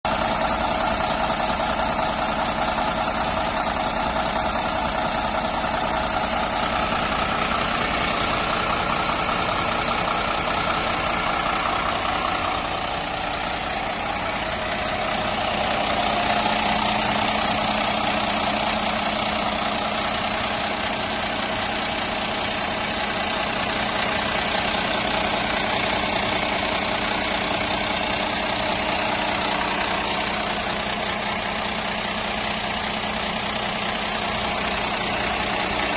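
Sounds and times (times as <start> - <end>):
bus engine idling: 0.0 - 35.9.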